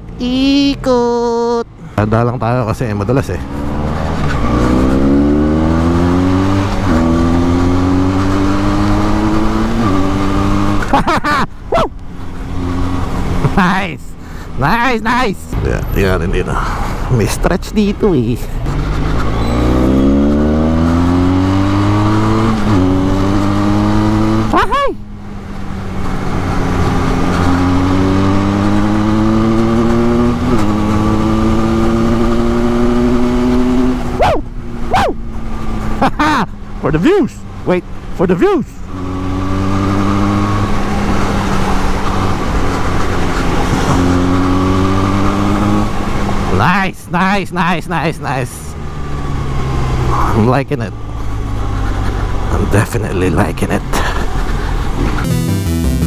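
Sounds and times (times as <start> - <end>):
motorcycle engine accelerating: 2.9 - 46.7, 47.3 - 56.0
gear upshift: 3.4 - 14.6, 17.8 - 46.6.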